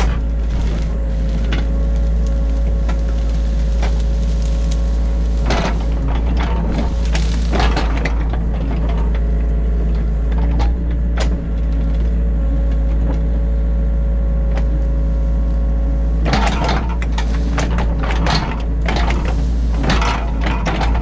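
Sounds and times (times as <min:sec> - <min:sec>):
bucket clattering and scraping: 0:00.0 - 0:09.0, 0:16.3 - 0:21.0
diesel engine running under load: 0:00.0 - 0:21.0.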